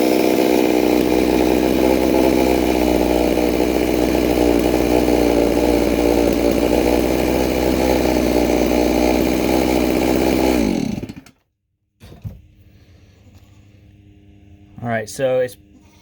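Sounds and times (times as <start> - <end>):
chainsaw engine at full throttle: 0.0 - 11.3.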